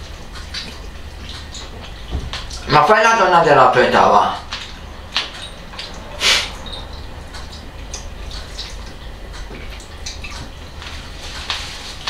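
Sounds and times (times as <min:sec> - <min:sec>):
wet chewing and lip-smacking: 0:04.5 - 0:12.0.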